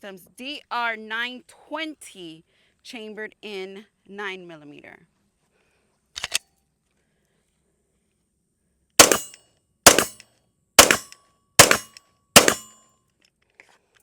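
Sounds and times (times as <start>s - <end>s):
pistol shots: 9.0s - 10.2s, 10.8s - 12.7s.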